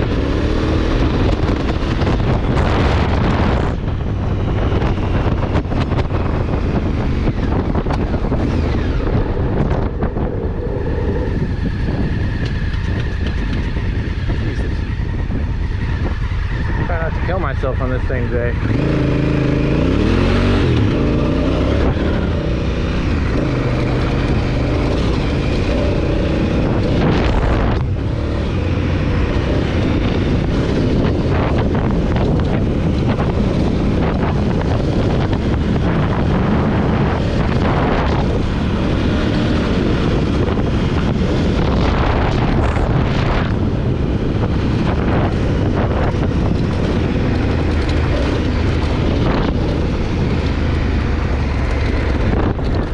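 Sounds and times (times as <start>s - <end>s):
motorcycle engine running: 0.0s - 52.9s
wind noise on microphone: 0.0s - 52.9s.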